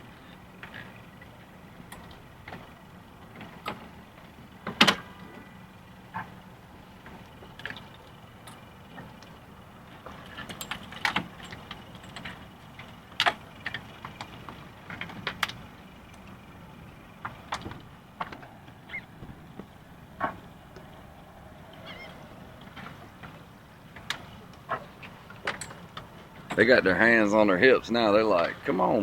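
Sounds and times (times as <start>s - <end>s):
low background hum: 0.0s - 29.0s
sharp clicks and knocks: 17.2s - 20.9s, 22.7s - 26.6s.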